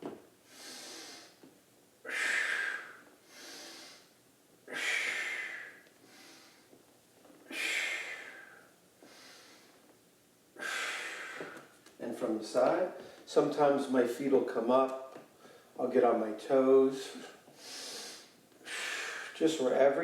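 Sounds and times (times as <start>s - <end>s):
man breathing deeply: 0.4s - 1.4s, 2.0s - 6.8s, 7.4s - 9.8s, 10.6s - 11.8s, 17.1s - 19.4s.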